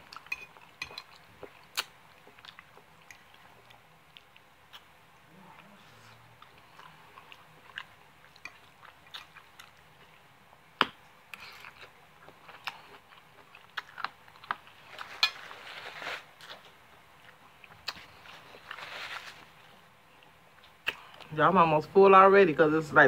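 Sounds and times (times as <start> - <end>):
person chewing noodles: 0.0 - 10.3, 11.3 - 21.3
rustle: 14.8 - 16.5, 18.2 - 19.7.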